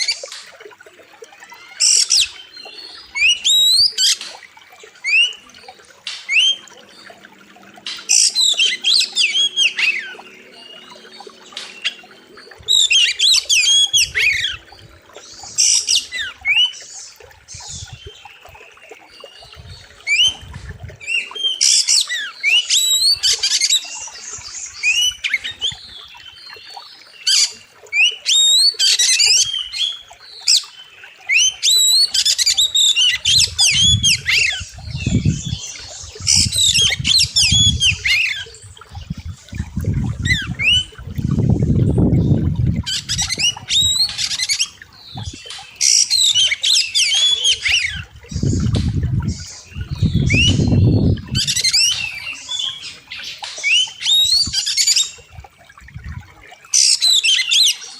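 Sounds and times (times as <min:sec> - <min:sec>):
bird singing whistles: 0:49.9 - 0:52.0.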